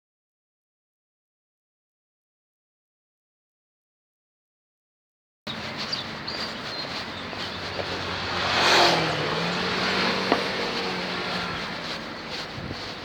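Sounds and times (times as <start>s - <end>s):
low steady engine hum: 5.5s - 13.0s
vehicle passing close: 5.5s - 13.0s.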